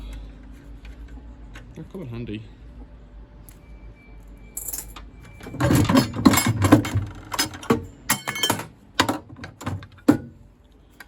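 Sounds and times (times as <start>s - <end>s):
metal parts clattering: 4.6s - 10.2s.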